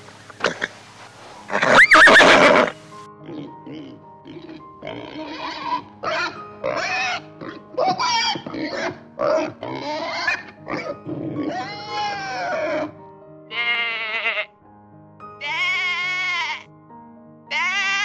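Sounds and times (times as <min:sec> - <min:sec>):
background music with held notes: 0:00.0 - 0:18.0
pig grunting and squealing: 0:03.2 - 0:13.0, 0:17.5 - 0:18.0
sheep or goat bleating: 0:11.4 - 0:12.7, 0:13.5 - 0:14.5, 0:15.4 - 0:16.7, 0:17.5 - 0:18.0.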